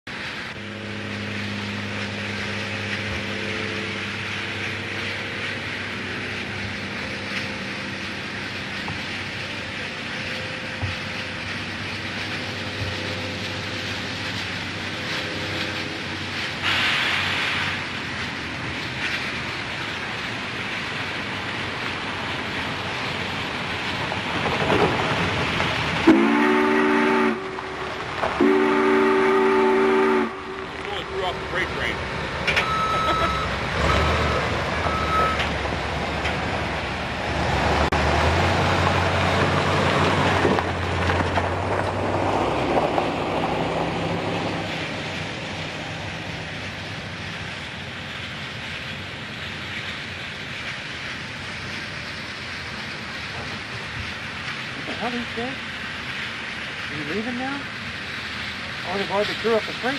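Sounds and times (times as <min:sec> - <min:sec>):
locomotive hissing: 0:00.1 - 0:59.9
steam locomotive chime whistle: 0:26.1 - 0:27.8, 0:28.4 - 0:30.7, 0:32.6 - 0:35.5.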